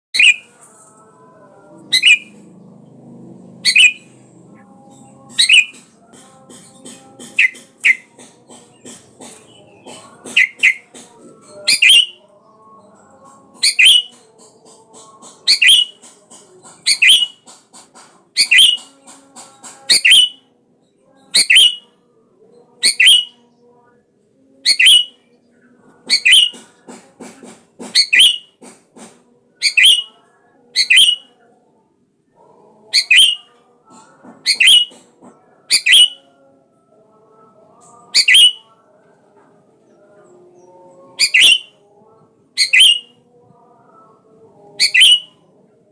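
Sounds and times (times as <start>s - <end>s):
faint bird chattering: 1.9s - 2.4s, 3.6s - 4.1s, 4.9s - 5.9s, 6.5s - 12.2s, 13.6s - 19.1s, 22.8s - 23.3s, 24.6s - 25.2s, 26.0s - 26.6s, 27.8s - 28.6s, 29.6s - 31.3s, 32.7s - 33.5s, 34.4s - 35.0s, 38.1s - 38.7s, 41.0s - 41.8s, 42.6s - 43.1s, 44.8s - 45.3s.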